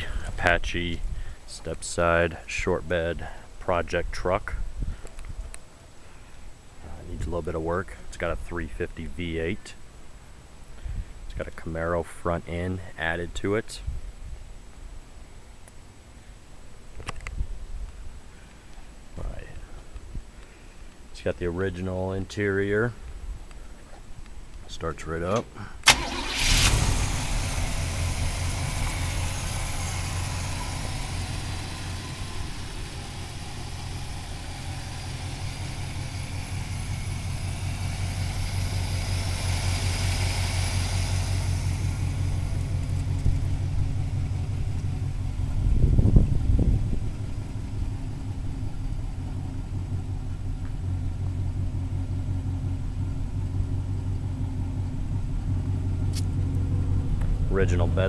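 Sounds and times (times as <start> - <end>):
car engine starting and idling: 25.2 - 58.0
engine throttle blip: 25.4 - 58.0.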